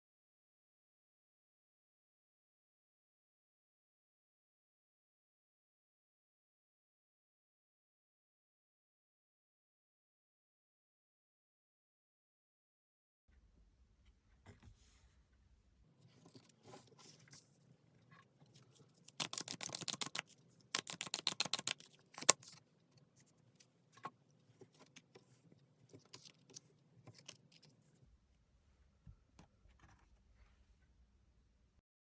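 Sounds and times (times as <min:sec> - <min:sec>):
cards being shuffled: 0:18.6 - 0:22.6
card handling taps and rustles: 0:19.0 - 0:22.6.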